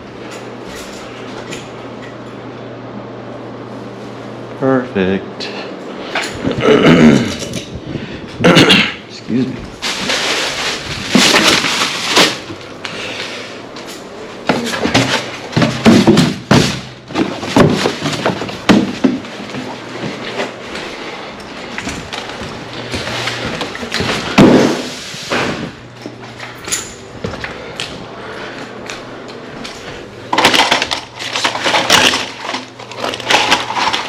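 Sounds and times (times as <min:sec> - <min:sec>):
hard objects knocking and clattering: 0:09.8 - 0:12.6, 0:14.4 - 0:20.4, 0:30.3 - 0:34.0.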